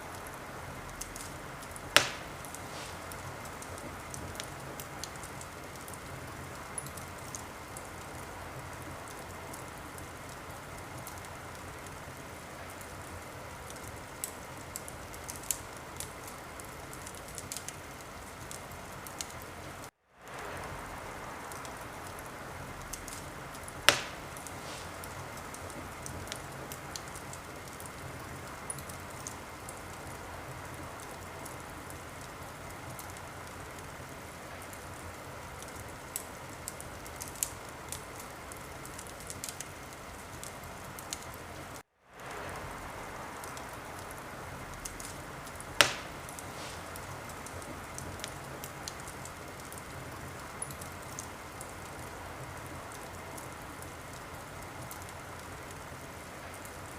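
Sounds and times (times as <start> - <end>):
wood fire crackling: 0.0 - 56.9
loud sharp fire pops: 0.9 - 8.0, 20.3 - 29.5, 44.7 - 49.9.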